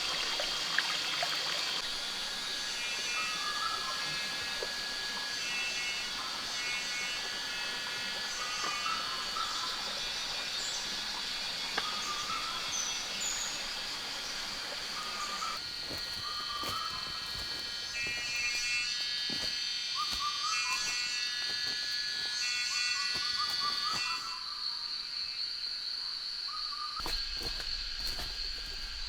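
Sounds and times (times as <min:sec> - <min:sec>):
high-pitched insect drone: 0:00.0 - 0:29.0
wavering animal calls: 0:01.5 - 0:17.3.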